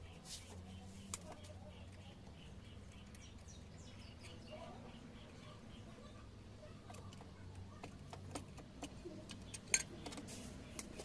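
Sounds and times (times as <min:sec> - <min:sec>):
hand tools clicking and tapping: 0:06.8 - 0:11.0.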